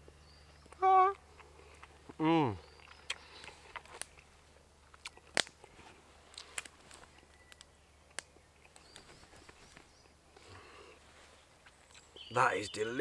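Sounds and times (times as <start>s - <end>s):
person chewing crunchy food: 1.2s - 5.7s.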